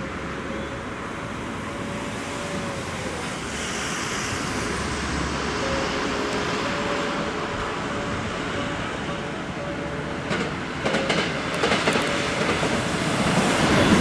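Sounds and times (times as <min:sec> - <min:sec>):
train running noise: 0:00.0 - 0:14.0.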